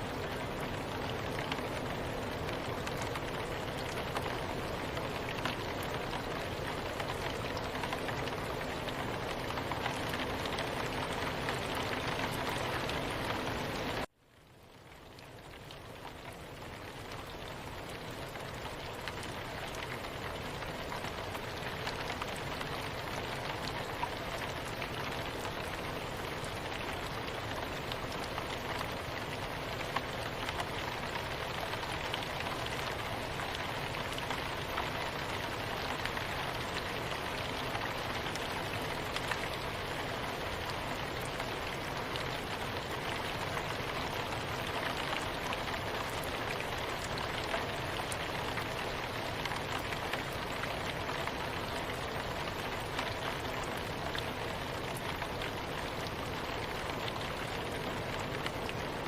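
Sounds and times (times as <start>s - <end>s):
soft rain: 0.0s - 59.0s.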